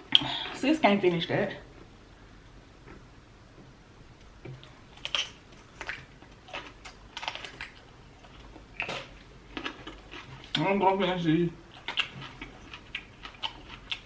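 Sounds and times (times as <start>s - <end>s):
chewing and mouth noise: 4.5s - 10.7s, 11.7s - 14.0s.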